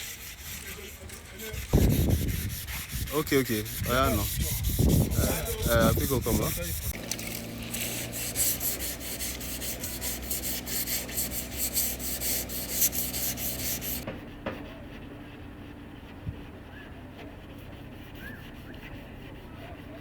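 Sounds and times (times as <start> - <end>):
sander rasping against surface: 0.0 - 20.0
power tool motor hum: 6.8 - 14.0.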